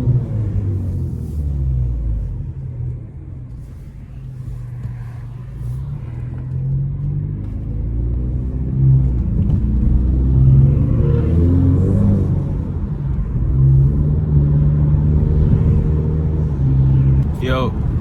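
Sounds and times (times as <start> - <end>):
car engine rumbling: 0.0 - 18.0.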